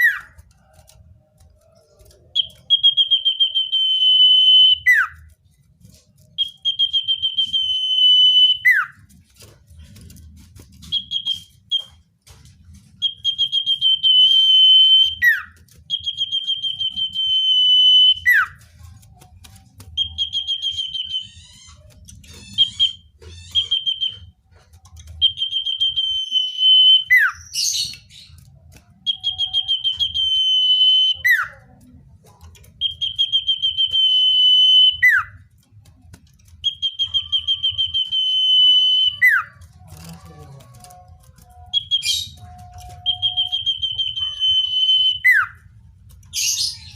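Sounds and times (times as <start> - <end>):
bird singing high whistles: 6.4 - 9.0, 13.0 - 18.6, 22.4 - 24.3, 25.2 - 28.3, 29.0 - 31.5, 32.8 - 35.3, 36.6 - 39.5, 41.7 - 45.6.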